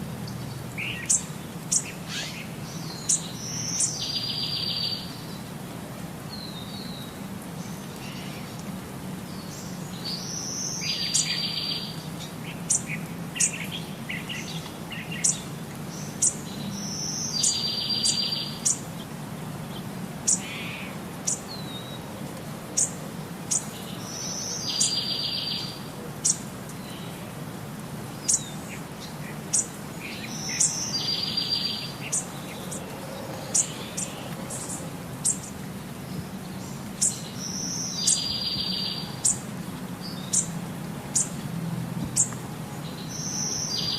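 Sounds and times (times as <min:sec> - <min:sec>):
bird singing with buzzy trill: 0:00.4 - 0:05.2, 0:12.7 - 0:18.8, 0:22.8 - 0:27.0, 0:28.2 - 0:32.8, 0:36.5 - 0:39.4, 0:42.9 - 0:43.9.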